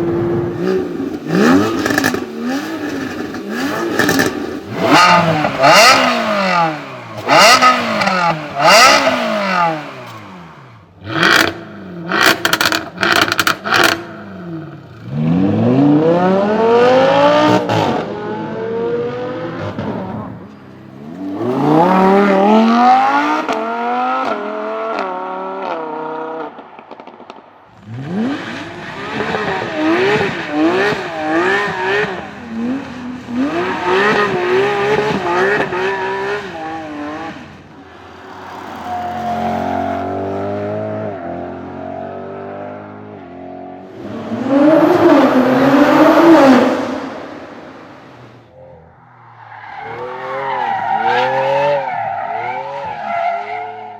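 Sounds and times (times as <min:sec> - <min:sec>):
sports car engine revving: 0:00.0 - 0:20.2, 0:21.0 - 0:27.1, 0:27.7 - 0:37.7.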